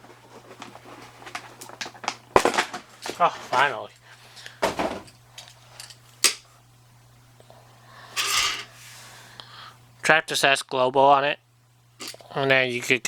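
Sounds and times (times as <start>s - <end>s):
steady low hum: 3.7s - 10.2s.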